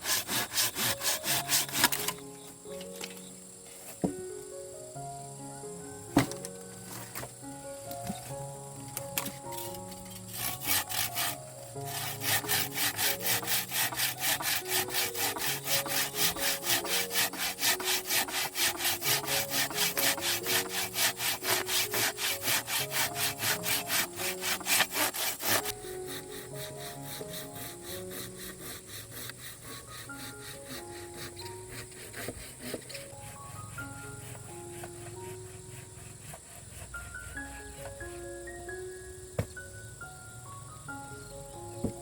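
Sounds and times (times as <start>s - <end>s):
hand saw cutting wood: 0.0s - 2.2s, 9.2s - 38.2s
background music with simple melody: 0.0s - 42.0s.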